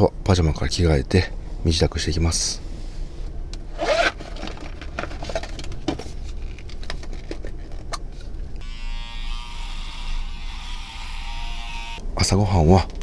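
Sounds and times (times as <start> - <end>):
clothes rustling: 3.7 - 8.5.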